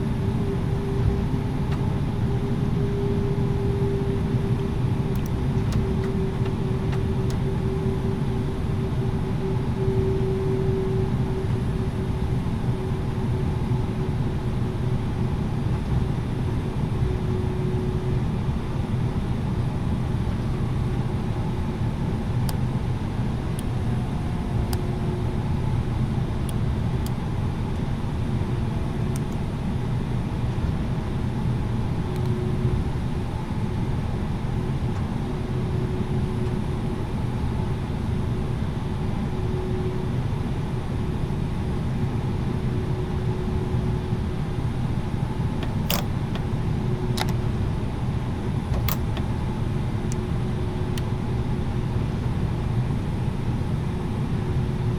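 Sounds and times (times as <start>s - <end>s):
airplane taxiing rumble: 0.0s - 35.9s, 45.6s - 51.2s
sharp clicks: 45.6s - 46.6s, 48.7s - 49.5s.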